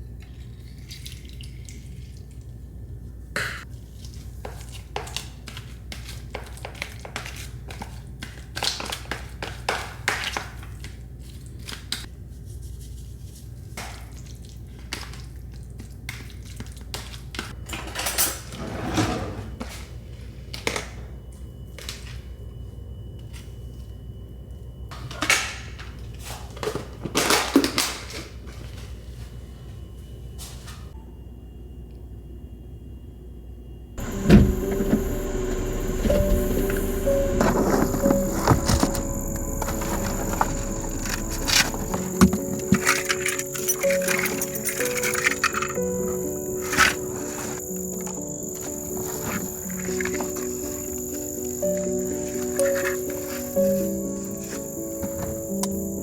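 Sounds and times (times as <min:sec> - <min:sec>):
steady low hum: 0:34.0 - 0:54.5.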